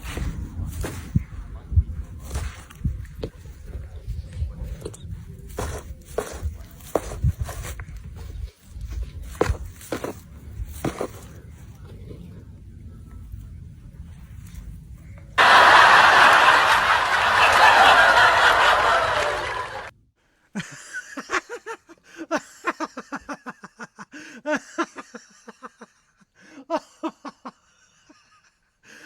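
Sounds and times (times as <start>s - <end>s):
laugh-like voice in pulses: 15.4s - 19.9s.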